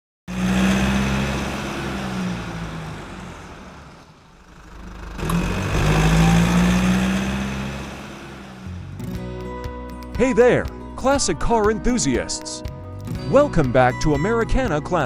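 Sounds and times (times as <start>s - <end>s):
car engine running: 0.3s - 11.2s.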